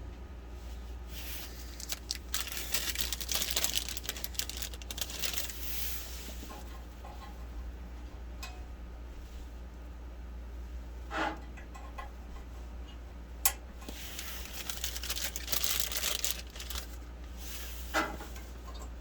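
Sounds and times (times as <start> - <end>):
plastic packaging crinkling: 1.2 - 6.1, 13.8 - 17.4.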